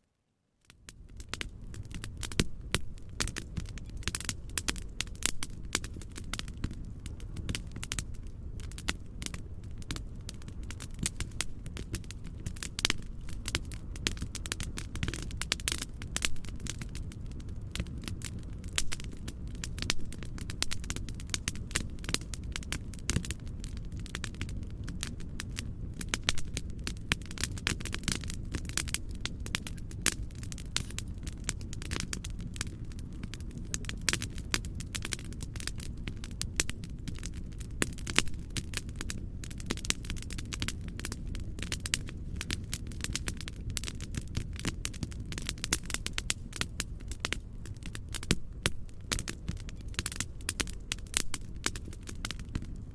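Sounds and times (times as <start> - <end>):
fireplace fire crackling: 0.6 - 52.9
low steady rumble: 0.9 - 52.9.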